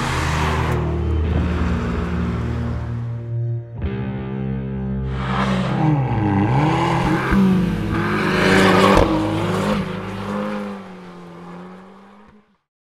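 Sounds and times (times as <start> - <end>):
car engine revving: 0.0 - 3.4, 5.0 - 12.6
exhaust rushing: 5.0 - 12.1.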